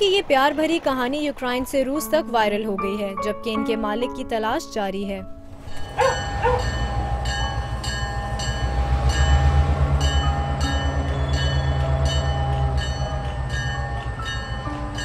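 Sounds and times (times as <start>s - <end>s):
train carriages rumbling: 5.5s - 15.0s.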